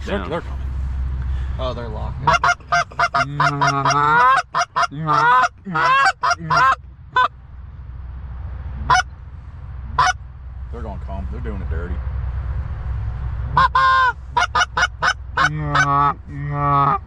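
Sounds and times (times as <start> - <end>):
geese honking and clucking: 2.2 - 7.3, 8.8 - 9.1, 9.9 - 10.2, 13.5 - 17.0.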